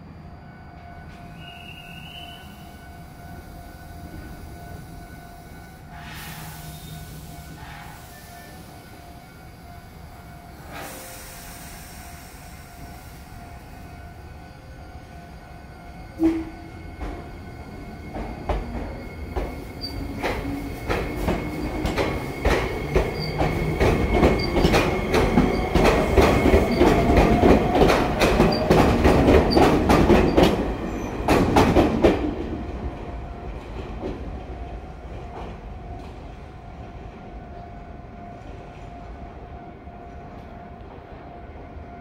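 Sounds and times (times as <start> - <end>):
train wheels clattering over rail joints: 18.1 - 30.6.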